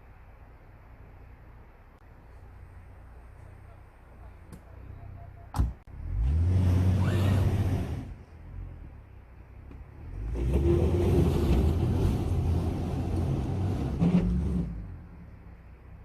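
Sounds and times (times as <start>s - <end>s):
truck engine revving: 5.9s - 8.9s, 10.0s - 15.3s.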